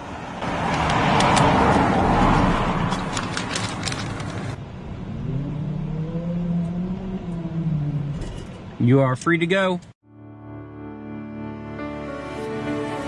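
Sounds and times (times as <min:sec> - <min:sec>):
loud rushing vehicle noise: 0:00.0 - 0:07.3
low motor hum: 0:04.8 - 0:08.8.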